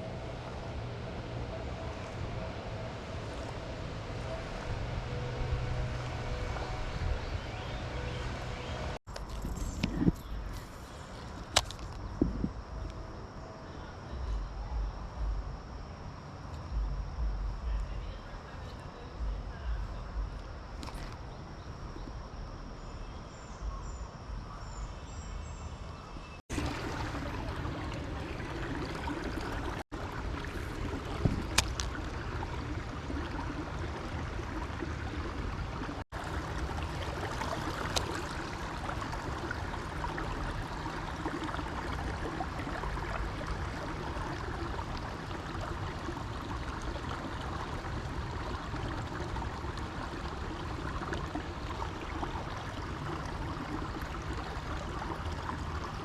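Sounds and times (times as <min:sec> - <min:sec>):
creek water rushing: 0:00.0 - 0:09.0, 0:26.5 - 0:56.0.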